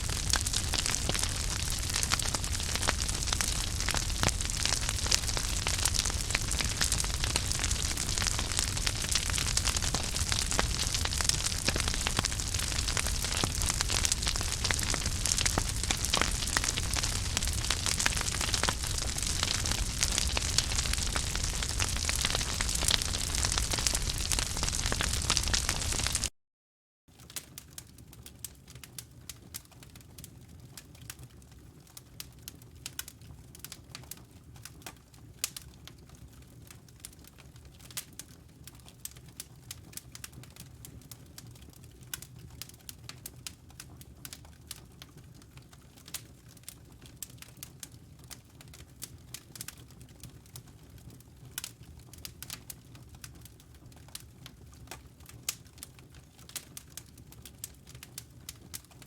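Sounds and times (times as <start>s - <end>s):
wood popping and snapping: 0.0s - 7.2s, 7.9s - 26.3s
flames burning: 0.0s - 26.3s, 38.7s - 59.0s.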